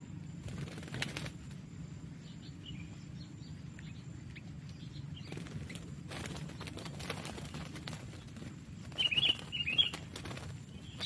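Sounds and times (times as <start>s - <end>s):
birds chirping: 0.0s - 11.0s
wings flapping and scuffling: 0.4s - 1.8s, 4.3s - 11.0s.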